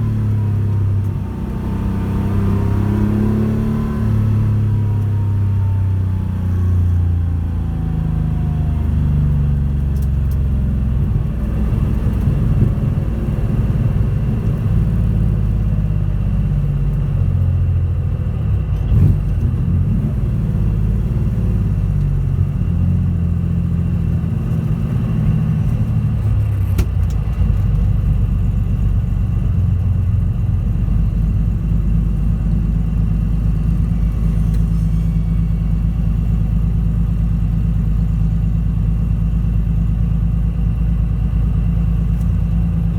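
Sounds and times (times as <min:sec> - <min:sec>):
rally car engine running: 0:00.0 - 0:42.9.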